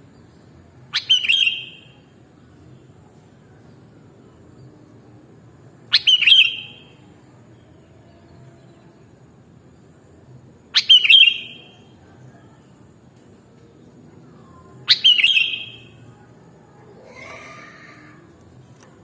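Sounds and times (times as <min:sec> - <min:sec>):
faint low background noise: 0:00.0 - 0:19.0
bird calling: 0:00.9 - 0:01.8, 0:05.9 - 0:06.8, 0:14.9 - 0:15.9.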